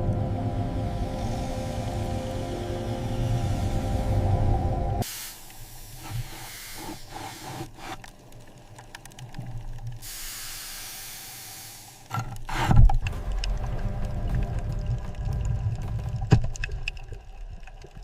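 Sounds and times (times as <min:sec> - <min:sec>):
soft hissing and rushing noise: 0:00.0 - 0:08.4
low thump with crackle: 0:12.1 - 0:18.0.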